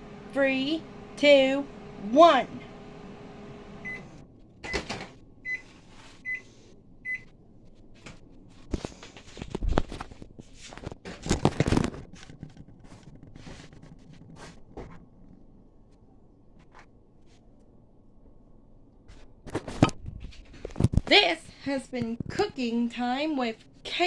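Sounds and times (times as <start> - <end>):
microwave timer beeps: 3.0 - 7.3.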